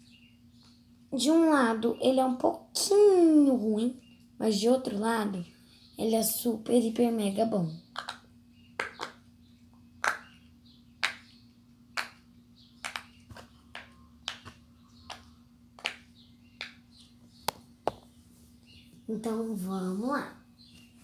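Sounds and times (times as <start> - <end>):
fidget toy bubbles popping: 7.9 - 9.2.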